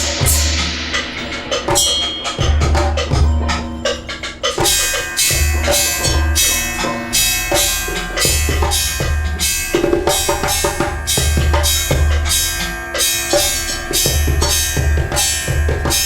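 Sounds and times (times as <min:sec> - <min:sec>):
improvised percussion clattering: 0:00.0 - 0:16.0
ringing metallic tones: 0:00.0 - 0:16.0
heavy low pulse: 0:02.4 - 0:12.8.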